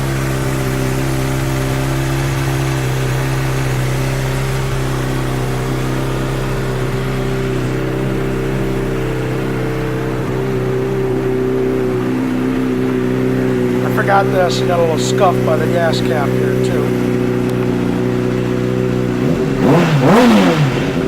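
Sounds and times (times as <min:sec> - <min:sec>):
motorcycle engine idling: 0:00.0 - 0:21.0.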